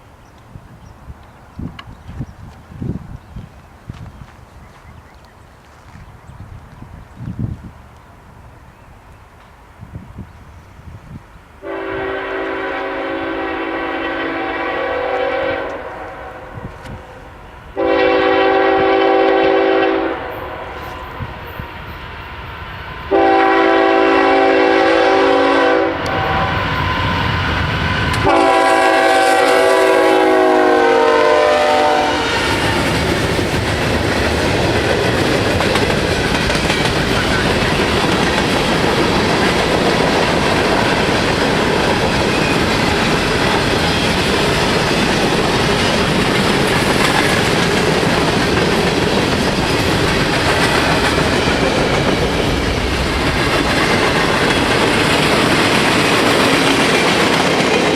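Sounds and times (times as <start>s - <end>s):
locomotive air horn blasts: 11.6s - 17.2s, 17.8s - 21.2s, 23.1s - 26.8s, 28.2s - 32.6s
train wheels clacking over rail joints: 32.4s - 57.9s.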